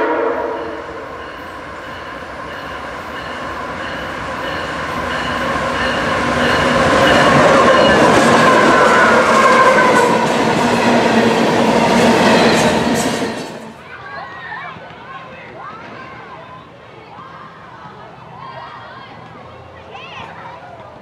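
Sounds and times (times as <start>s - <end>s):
diesel locomotive passing: 0.0s - 13.9s.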